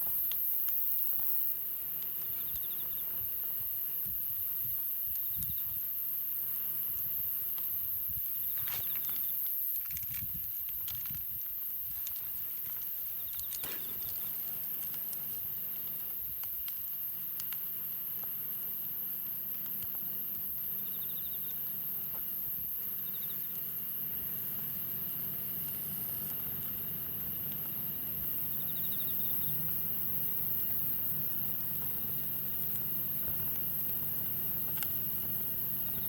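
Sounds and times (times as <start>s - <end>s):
campfire crackling: 0.0s - 5.0s, 5.8s - 36.0s
sharp pops: 13.4s - 15.5s.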